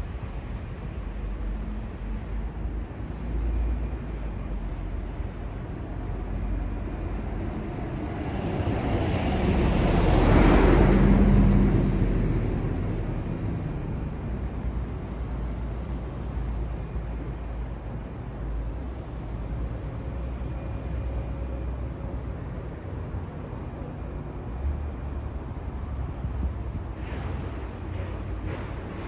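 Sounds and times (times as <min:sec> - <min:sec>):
city traffic rumble: 0:00.0 - 0:29.0
vehicle passing close by: 0:05.8 - 0:14.9.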